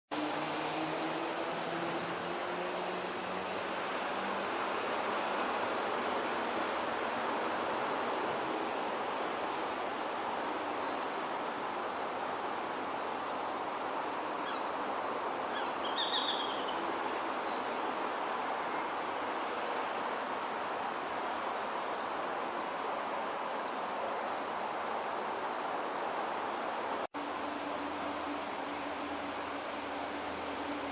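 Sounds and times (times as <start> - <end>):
wind-like background hiss: 0.1 - 30.9.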